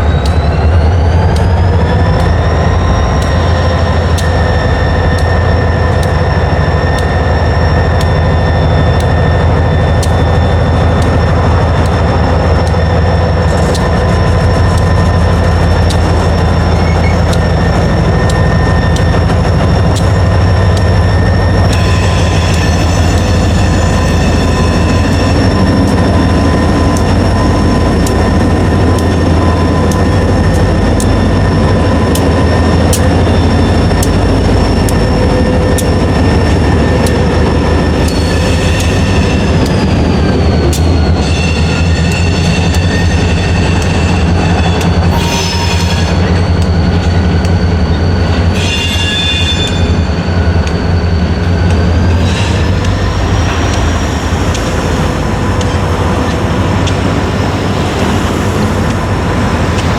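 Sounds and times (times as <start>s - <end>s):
crossing signal bells ringing: 0.0s - 59.9s
train wheels rumbling on rails: 0.0s - 59.9s
wheels squealing: 0.0s - 59.9s.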